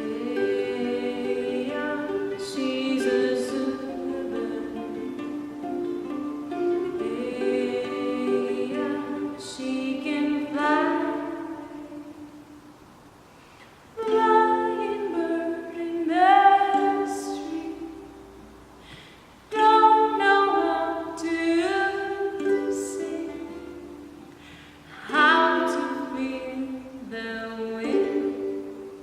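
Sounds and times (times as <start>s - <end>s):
wordless singing in harmony: 0.0s - 12.4s, 14.0s - 18.4s, 19.4s - 29.0s.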